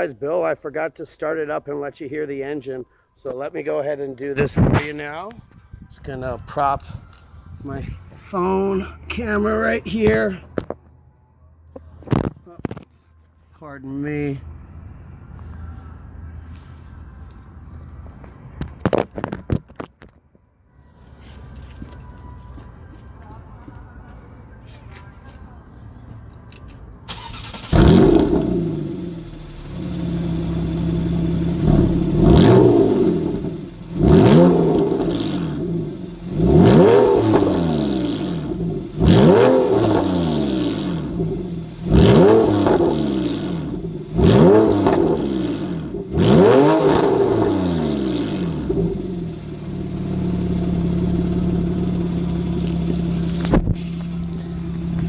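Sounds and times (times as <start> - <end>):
car engine revving and idling: 27.1 - 55.0.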